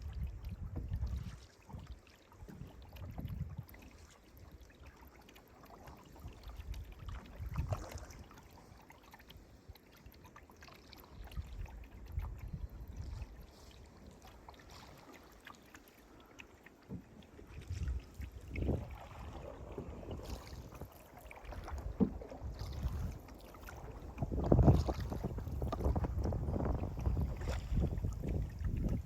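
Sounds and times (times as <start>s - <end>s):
wind rumble on microphone: 0.0s - 3.8s, 6.2s - 8.3s, 11.2s - 13.6s, 17.5s - 29.0s
paddle strokes swishing in water: 0.0s - 29.0s
small knocks on canoe: 16.8s - 17.9s, 19.8s - 29.0s.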